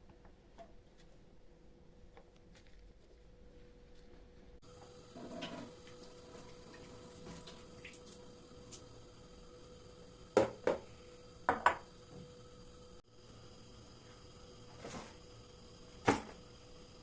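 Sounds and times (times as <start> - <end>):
faint steady hum: 0.0 - 17.0
kitchenware knocking and clinking: 11.5 - 11.8.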